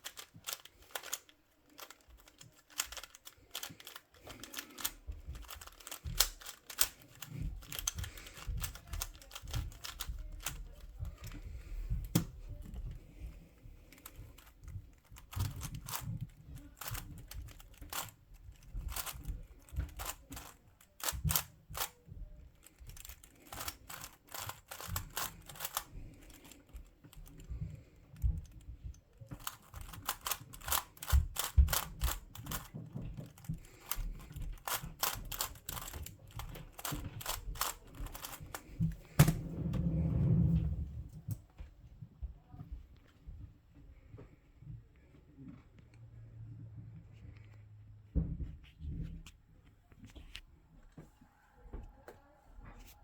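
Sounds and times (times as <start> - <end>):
puzzle cube clicking turns: 0.0 - 13.2, 13.8 - 39.5.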